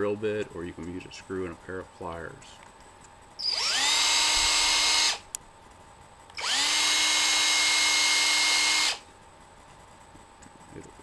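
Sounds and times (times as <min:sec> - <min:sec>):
small electric drill whining: 0:03.4 - 0:05.3, 0:06.4 - 0:09.1
drill click: 0:03.4 - 0:05.4, 0:06.3 - 0:09.0.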